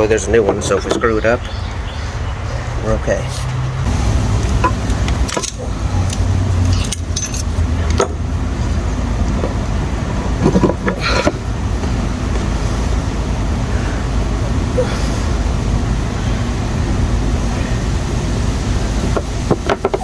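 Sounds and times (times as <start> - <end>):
steady low rumble: 0.0 - 19.7
metal tools clinking and scraping: 4.6 - 8.1.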